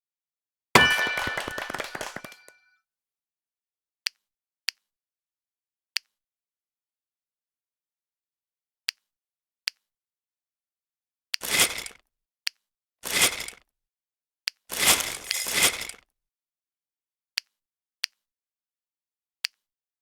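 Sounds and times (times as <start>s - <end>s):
toy car gear motor rattling: 11.4s - 12.0s, 13.0s - 13.6s, 14.7s - 16.0s.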